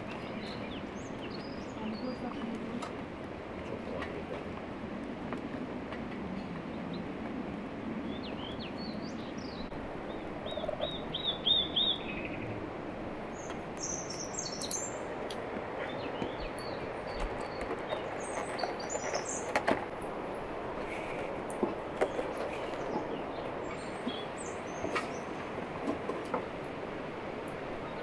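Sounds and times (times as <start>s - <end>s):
small birds chirping: 0.0s - 2.8s, 8.0s - 12.6s, 13.3s - 19.6s, 21.9s - 25.6s.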